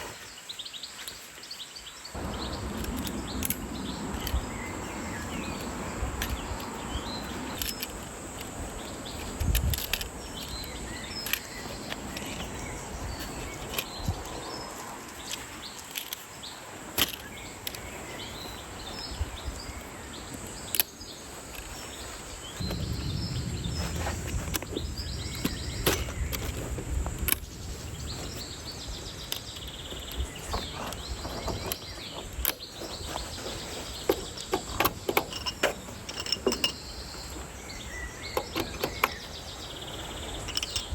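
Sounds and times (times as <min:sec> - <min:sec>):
birds chirping: 0:00.0 - 0:40.9
low rumble: 0:22.6 - 0:27.2.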